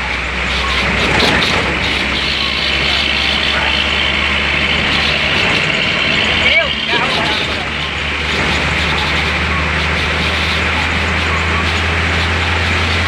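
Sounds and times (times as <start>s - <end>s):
bus engine droning: 0.0s - 13.0s
road noise hiss: 0.0s - 13.0s.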